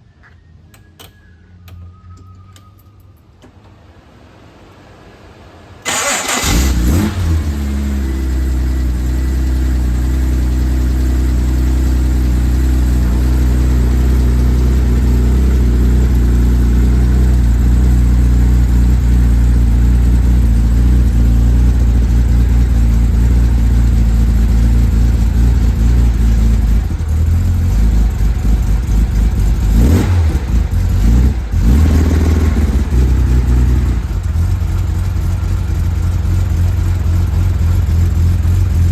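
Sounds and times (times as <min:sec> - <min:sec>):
car engine idling: 0:03.6 - 0:38.9
starter motor cranking: 0:05.9 - 0:07.2.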